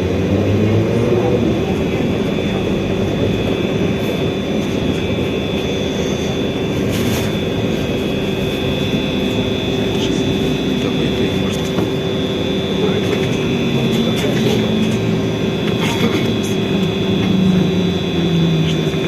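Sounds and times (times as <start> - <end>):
bus running noise: 0.0 - 19.0
electric drive hum and whine: 0.0 - 19.0.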